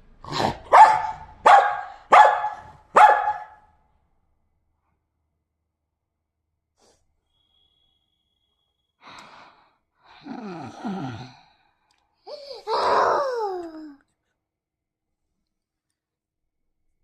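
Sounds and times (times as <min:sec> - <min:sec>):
dog barking: 0:00.3 - 0:03.7.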